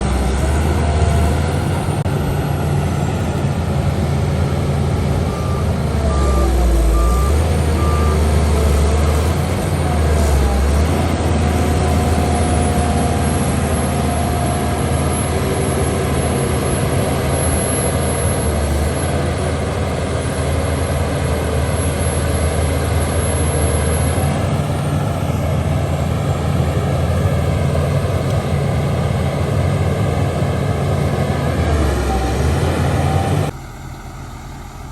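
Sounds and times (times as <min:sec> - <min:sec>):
diesel engine running: 0:00.0 - 0:34.9
reversing alarm beeps: 0:05.2 - 0:09.1, 0:11.7 - 0:19.3, 0:21.7 - 0:24.4.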